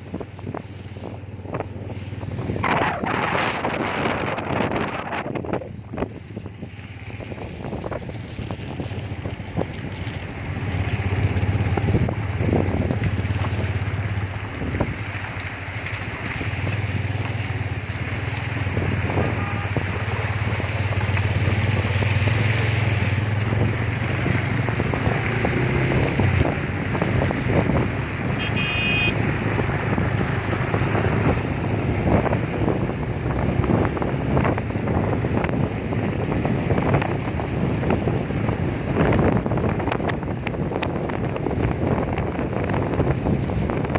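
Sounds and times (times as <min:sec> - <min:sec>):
motorcycle engine droning: 0:00.0 - 0:32.8
wind buffeting microphone: 0:00.0 - 0:43.9
short horn beep: 0:19.3 - 0:19.8, 0:28.4 - 0:29.2.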